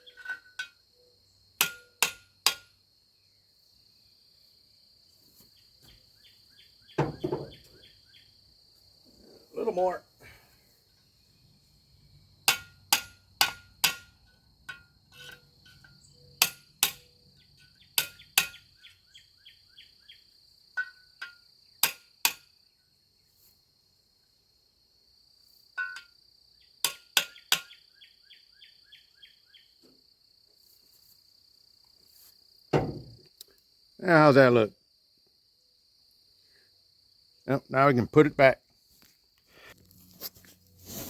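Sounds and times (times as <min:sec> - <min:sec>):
hammer tapping metal: 0:01.6 - 0:02.7, 0:12.5 - 0:15.4, 0:16.4 - 0:17.0.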